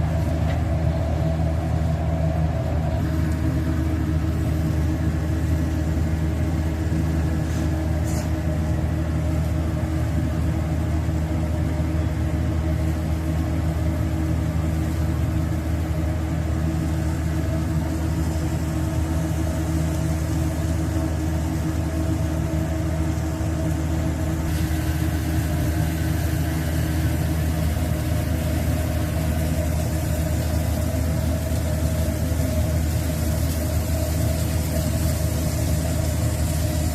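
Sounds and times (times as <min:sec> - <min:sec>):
low machine hum: 0:00.0 - 0:36.9
bright hiss: 0:24.4 - 0:32.2.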